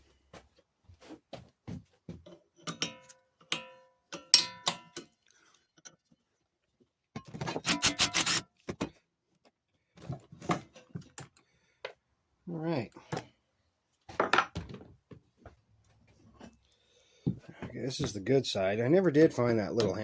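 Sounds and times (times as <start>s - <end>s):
sharp metal clanks: 2.6s - 5.1s
metal tools clinking: 2.6s - 5.2s.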